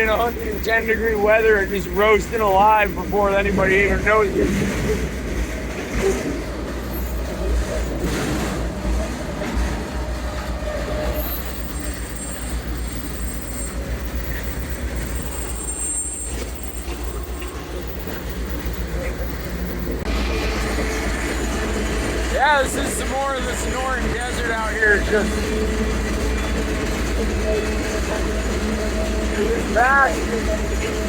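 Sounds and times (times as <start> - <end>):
freight train wheels rumbling: 0.0 - 31.0
faint high squeal: 11.0 - 19.5.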